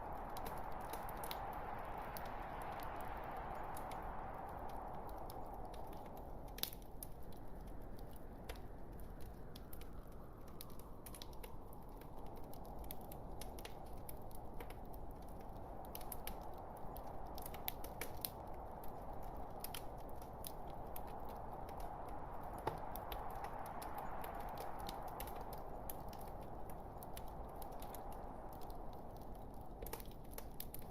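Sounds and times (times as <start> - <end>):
burning wood crackling and popping: 0.0 - 30.9
log fire hissing: 0.0 - 30.9.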